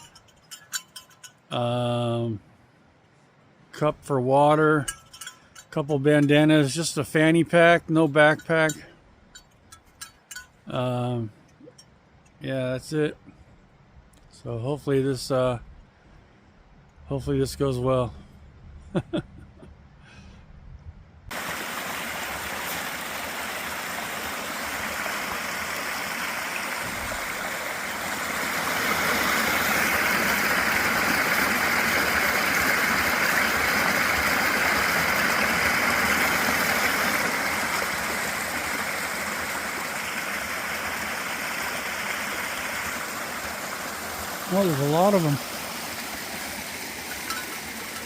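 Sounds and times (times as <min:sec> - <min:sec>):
stream water rushing: 0:00.0 - 0:01.7, 0:04.6 - 0:08.8, 0:21.3 - 0:48.0.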